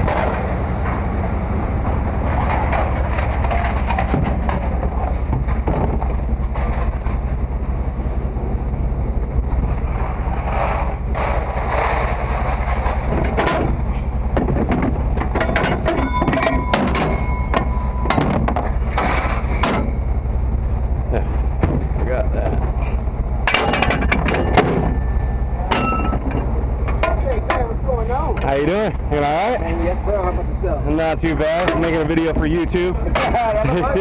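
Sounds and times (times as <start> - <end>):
vehicle engine running: 0.0 - 34.0
rattles and clicks: 1.8 - 7.7, 9.4 - 20.2, 21.4 - 28.6.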